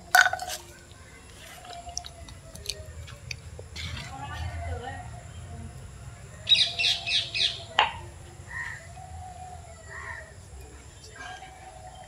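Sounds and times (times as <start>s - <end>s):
bird chirping: 6.4s - 12.0s.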